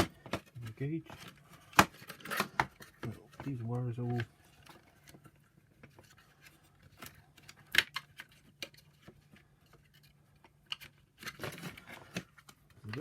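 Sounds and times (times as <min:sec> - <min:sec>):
plastic parts clicking: 0:00.0 - 0:13.0.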